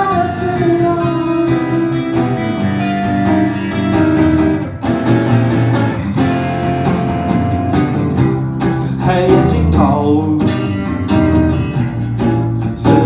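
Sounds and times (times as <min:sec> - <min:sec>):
live band playing instrumental: 0:00.0 - 0:09.6.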